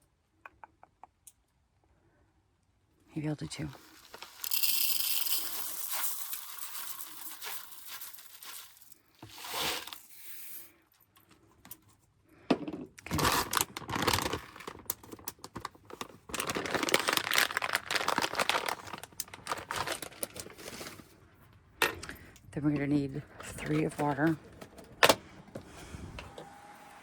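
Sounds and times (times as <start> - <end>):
packet crinkling and rustling: 3.7 - 10.1, 13.0 - 21.4
rice grains clicking and pouring: 3.8 - 10.7.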